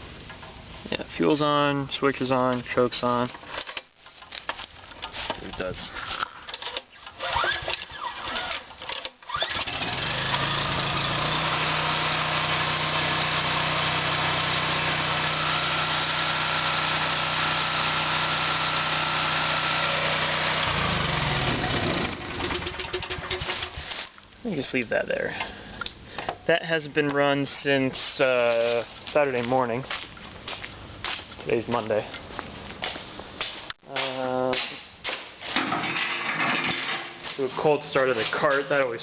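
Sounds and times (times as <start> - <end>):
generator engine running: 9.3 - 23.9.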